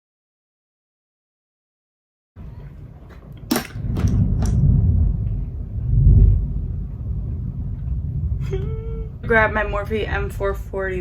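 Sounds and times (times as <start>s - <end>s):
thunder rumbling: 3.3s - 11.0s.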